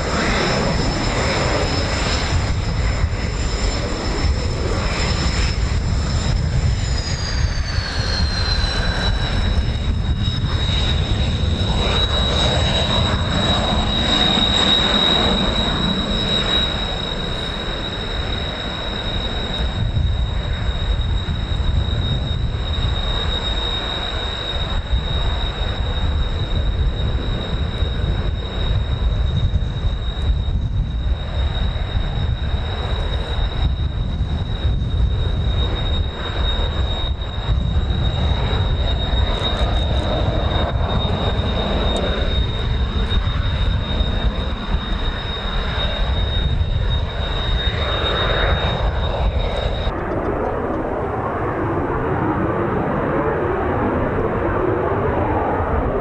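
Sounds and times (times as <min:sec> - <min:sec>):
jet engines whining: 0:00.0 - 0:56.0
wind rumble on microphone: 0:00.0 - 0:56.0.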